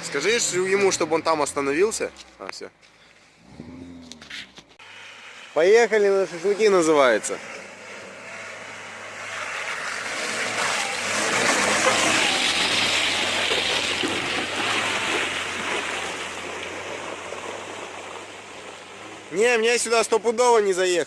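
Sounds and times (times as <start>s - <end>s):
rushing splashing water: 9.1s - 20.4s.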